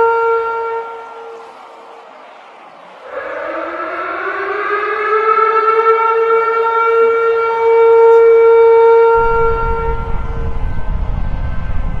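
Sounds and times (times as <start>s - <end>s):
civil defense siren: 0.0s - 12.0s
deep rumble: 9.1s - 12.0s.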